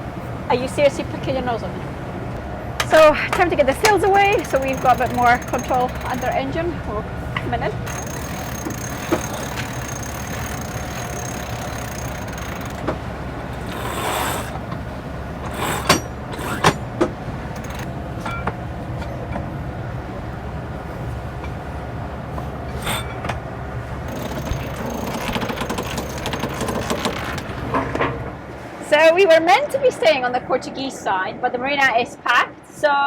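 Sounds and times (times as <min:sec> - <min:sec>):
boat engine humming: 0:00.0 - 0:29.0
sharp clicks and knocks: 0:02.4 - 0:06.6, 0:07.4 - 0:19.5, 0:22.3 - 0:28.2.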